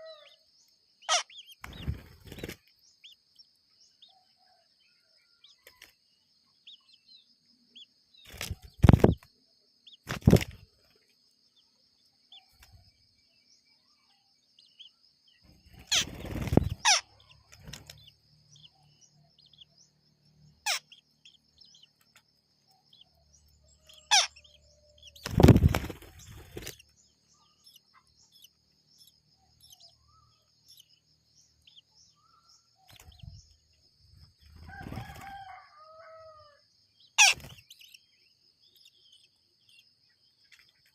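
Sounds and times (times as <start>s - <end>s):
wings fluttering and rustling: 1.6s - 2.8s, 8.2s - 9.3s, 10.0s - 11.2s, 15.5s - 18.5s, 25.0s - 27.3s, 34.2s - 36.1s, 37.2s - 37.9s.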